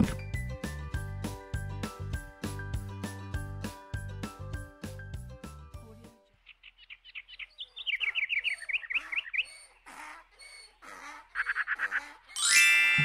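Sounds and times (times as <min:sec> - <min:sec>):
birds chirping: 0:06.3 - 0:13.0
children's music jingle: 0:12.4 - 0:13.0.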